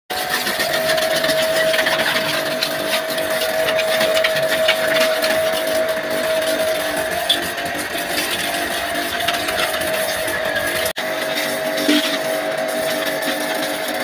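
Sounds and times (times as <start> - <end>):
pressure washer humming: 0.1 - 11.0
hissing water spray: 0.2 - 14.0.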